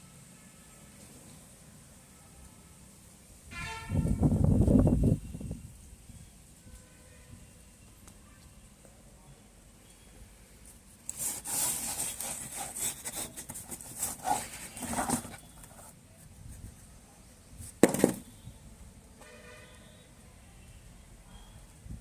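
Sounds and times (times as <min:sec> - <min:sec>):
scraping and rubbing: 0:11.1 - 0:16.8.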